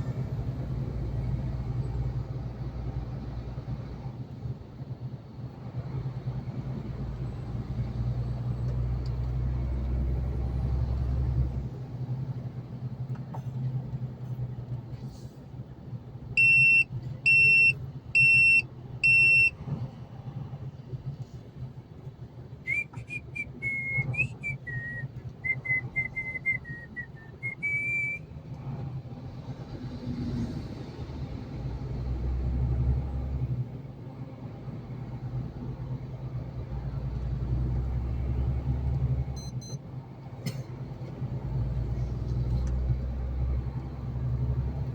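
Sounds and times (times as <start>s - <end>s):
road noise: 0.0s - 44.9s
truck engine rumble: 0.0s - 44.9s
short electronic beeps: 16.4s - 19.5s, 25.6s - 28.2s, 39.4s - 39.8s
wavering whistling: 22.7s - 28.2s.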